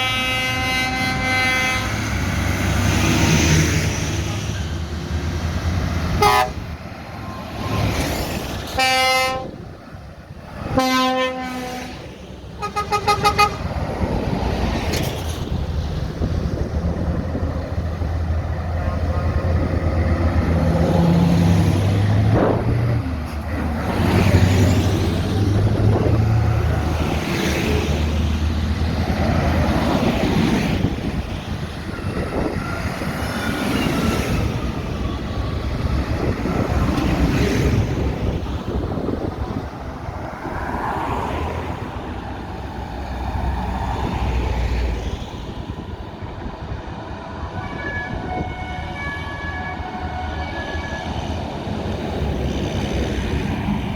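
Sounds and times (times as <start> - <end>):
horn steady tone: 0.0 - 2.2, 6.2 - 6.7, 8.8 - 9.6, 10.8 - 13.7, 47.5 - 51.3
tractor engines passing: 0.0 - 53.9.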